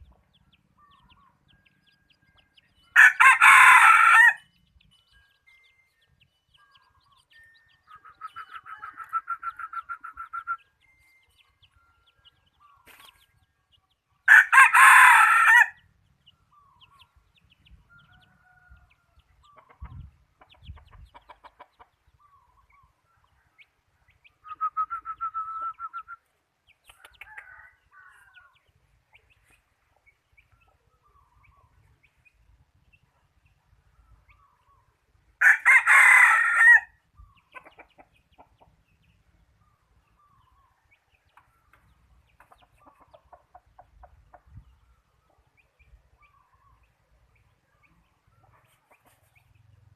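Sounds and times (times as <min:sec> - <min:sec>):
rooster crowing: 0:03.0 - 0:04.4, 0:14.3 - 0:15.8, 0:35.4 - 0:37.0.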